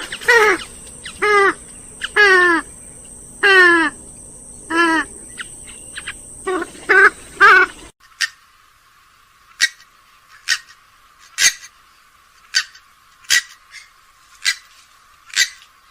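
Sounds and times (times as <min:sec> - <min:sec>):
bird nasal calls: 0:00.0 - 0:08.4.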